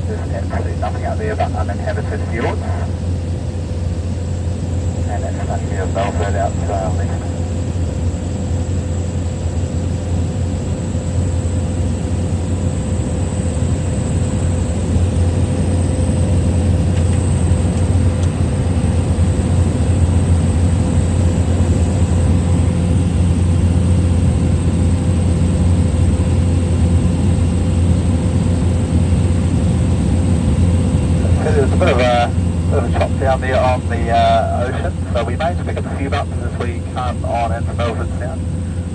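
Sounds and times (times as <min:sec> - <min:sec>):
faint high whine: 0:00.0 - 0:03.4, 0:04.1 - 0:07.7, 0:30.6 - 0:38.9
small plane engine drone: 0:00.0 - 0:38.9.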